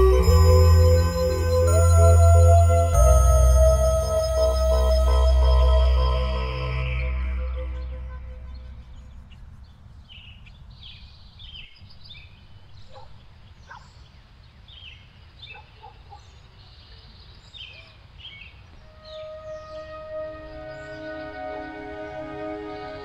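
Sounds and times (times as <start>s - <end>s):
background music: 0.0s - 8.8s, 18.9s - 23.0s
small birds chirping: 4.3s - 23.0s.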